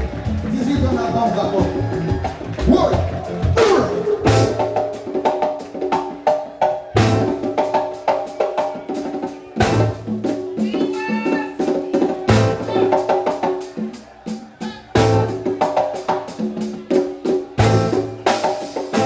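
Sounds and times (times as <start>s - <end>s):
heavy accented drum hits: 0.0s - 5.4s
drum kit beat: 0.0s - 19.0s
live band music: 0.0s - 19.0s.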